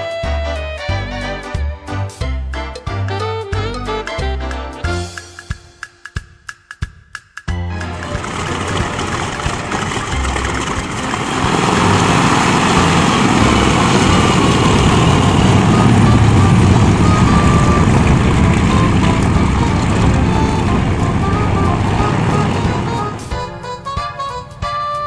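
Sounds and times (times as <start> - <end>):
biplane radial engine running: 7.5 - 25.0.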